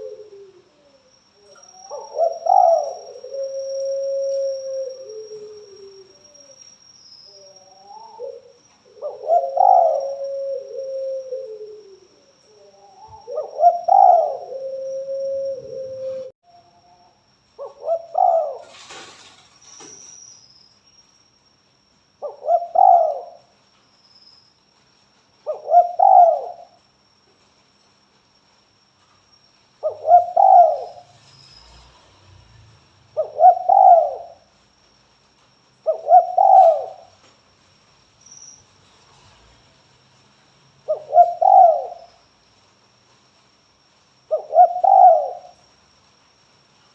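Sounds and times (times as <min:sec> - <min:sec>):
dove cooing: 0:00.0 - 0:06.6, 0:07.4 - 0:16.3, 0:17.6 - 0:19.0, 0:22.2 - 0:23.4, 0:25.5 - 0:26.8, 0:29.8 - 0:31.1, 0:33.2 - 0:34.4, 0:35.8 - 0:37.2, 0:40.9 - 0:42.1, 0:44.3 - 0:45.6.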